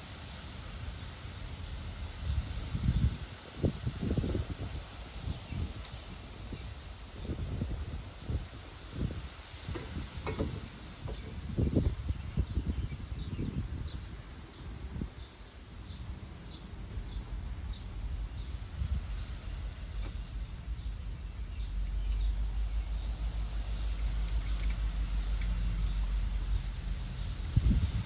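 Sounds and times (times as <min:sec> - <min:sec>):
low rumble: 0:16.5 - 0:28.0.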